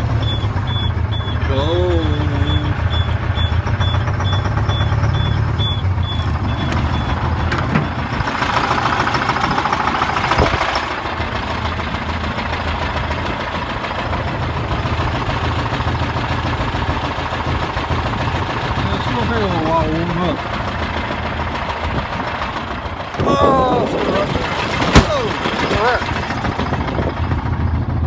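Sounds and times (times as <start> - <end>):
diesel engine running: 0.0 - 28.0
high warning beeper: 0.1 - 7.2.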